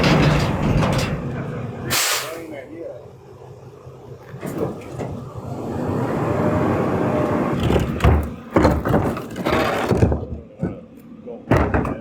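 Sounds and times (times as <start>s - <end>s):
loud bangs and clunks: 0.0s - 2.2s, 7.6s - 10.8s, 11.5s - 12.0s
garbage truck engine running: 0.0s - 2.4s.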